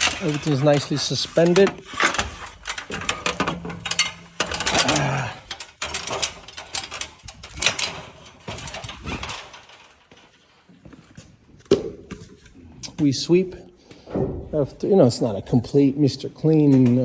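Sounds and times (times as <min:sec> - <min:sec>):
clicks knocks and clatter: 0:00.0 - 0:13.0.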